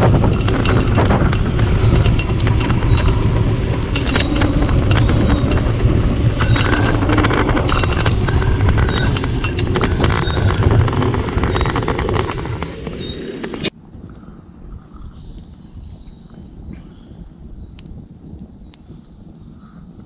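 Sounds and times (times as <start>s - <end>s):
bicycle rattling: 0.0s - 13.8s
wind rumble on microphone: 0.0s - 20.0s.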